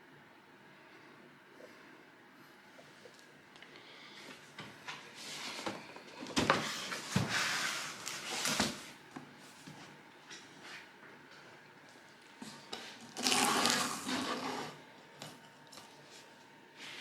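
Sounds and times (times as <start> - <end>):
box scraping and rustling: 13.2 - 14.8.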